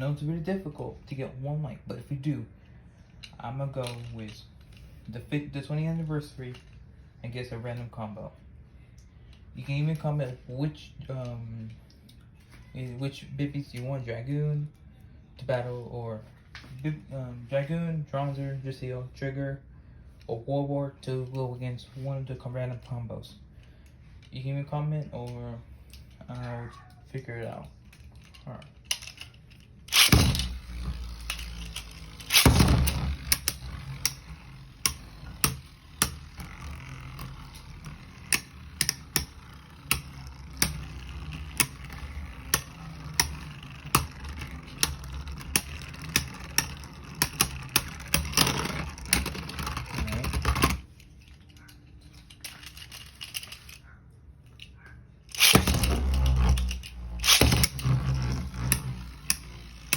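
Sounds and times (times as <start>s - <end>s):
spinning tops rushing: 29.9s - 50.5s, 55.3s - 59.9s
tops clashing clicks: 29.9s - 50.8s, 55.3s - 59.9s.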